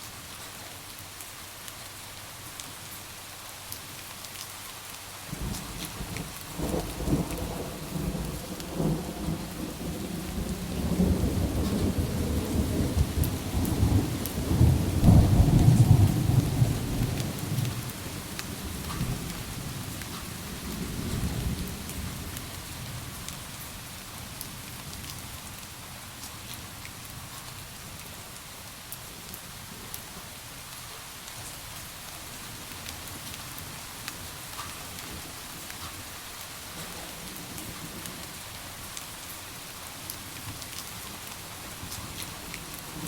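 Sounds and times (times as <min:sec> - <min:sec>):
steady rain: 0:00.0 - 0:43.0.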